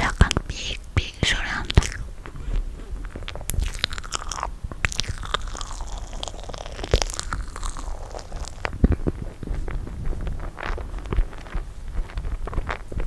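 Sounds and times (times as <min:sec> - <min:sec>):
wet chewing and mouth smacks: 0:00.0 - 0:02.1, 0:03.2 - 0:09.9.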